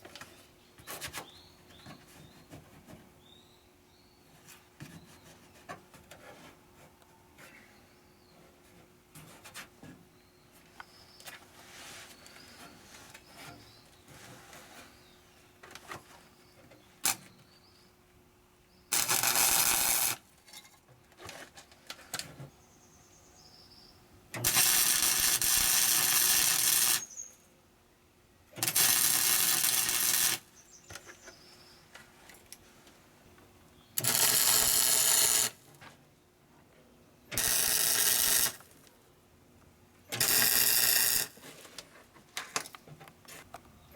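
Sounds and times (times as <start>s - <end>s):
welding crackle: 18.9s - 20.2s, 24.4s - 27.1s, 28.6s - 30.5s, 34.0s - 35.6s, 37.4s - 38.8s, 40.2s - 41.4s.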